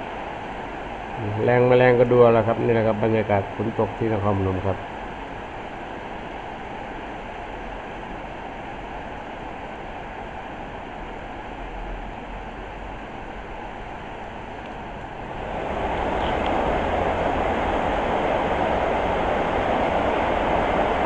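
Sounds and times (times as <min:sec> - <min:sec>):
steady rain falling: 0:15.2 - 0:21.0.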